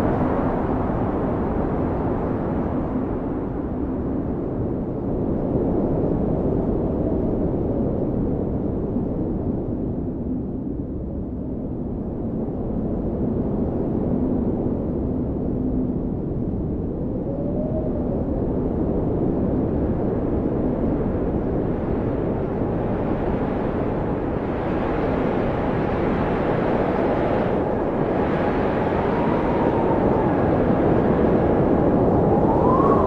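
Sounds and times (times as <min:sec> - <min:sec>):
blizzard wind rushing and howling: 0:00.0 - 0:33.0.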